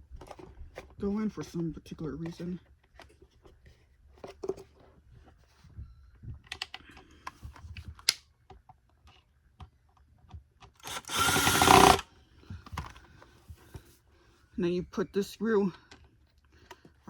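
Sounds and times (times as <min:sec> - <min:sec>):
plastic parts clicking together: 0:06.4 - 0:12.0
power screwdriver driving screw: 0:10.8 - 0:12.1.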